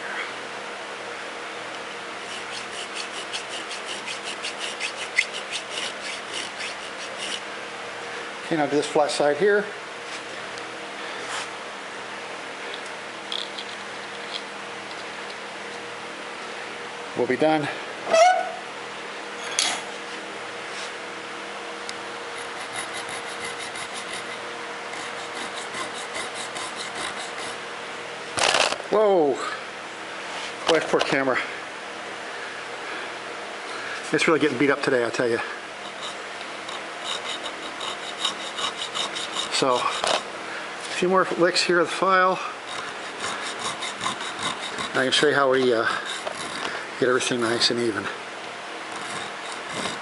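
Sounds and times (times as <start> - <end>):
file rasping on metal: 2.2 - 7.5, 22.3 - 27.6, 35.8 - 40.3, 42.5 - 46.8, 48.9 - 50.0.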